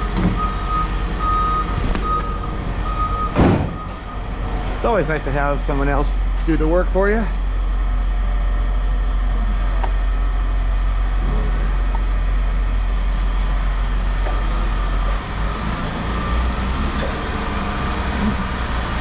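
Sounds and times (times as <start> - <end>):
engine low drone: 0.0 - 19.0.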